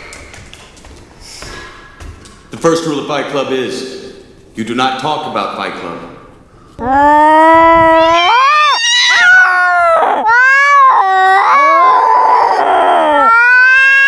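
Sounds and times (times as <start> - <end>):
cat yowling: 6.8 - 14.0.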